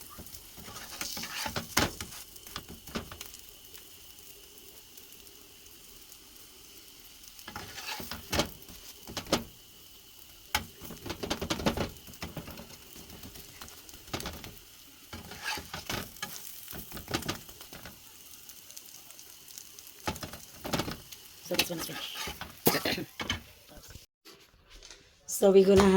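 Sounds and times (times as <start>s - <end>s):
bread sizzling on a griddle: 0.0s - 24.1s
utensil scraping and tapping: 10.6s - 17.9s.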